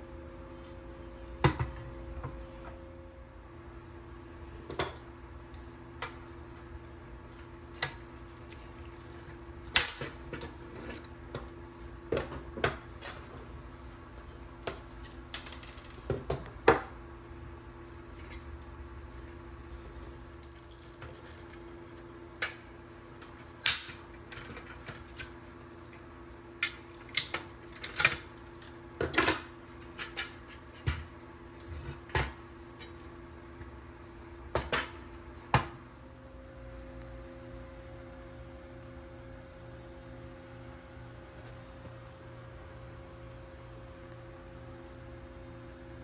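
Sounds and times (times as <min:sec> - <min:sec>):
small metal parts clinking: 0:14.2 - 0:16.2.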